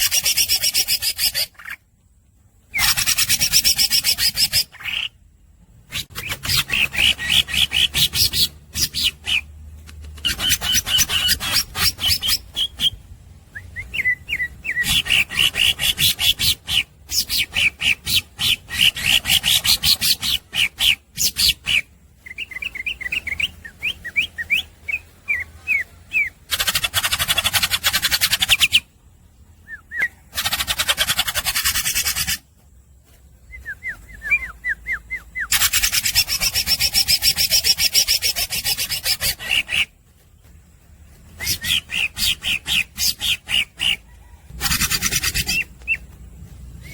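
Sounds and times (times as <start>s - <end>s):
bird harsh rasping rattles: 2.8s - 4.9s, 10.0s - 12.8s, 26.5s - 28.8s, 30.3s - 32.5s, 35.5s - 40.0s, 41.5s - 45.7s
bird chirping and whistling: 5.9s - 9.5s, 10.3s - 28.9s, 29.6s - 32.4s, 33.4s - 39.9s, 41.3s - 46.1s.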